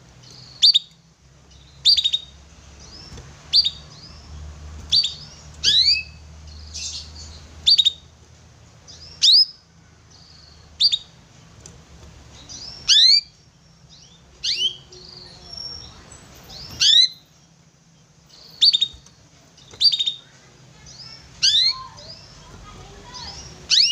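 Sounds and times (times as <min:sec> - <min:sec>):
canary call notes: 0:12.8 - 0:13.4, 0:16.8 - 0:17.2, 0:19.8 - 0:22.4, 0:23.1 - 0:23.9.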